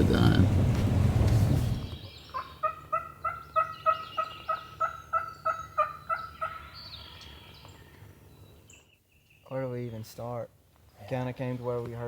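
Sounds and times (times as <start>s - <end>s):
faint songbird chirps: 1.8s - 11.1s
turkey yelping: 2.3s - 6.7s.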